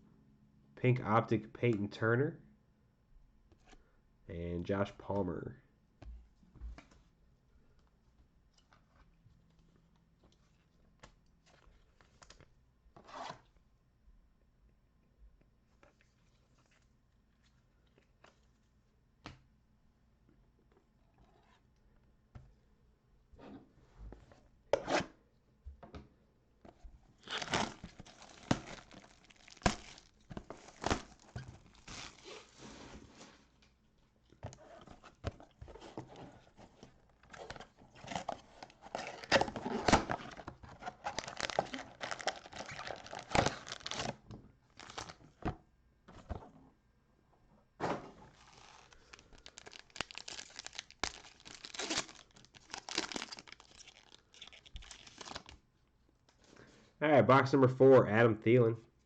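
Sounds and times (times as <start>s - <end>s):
card packaging tearing and crinkling: 27.2s - 33.0s, 34.6s - 45.2s, 48.3s - 55.6s.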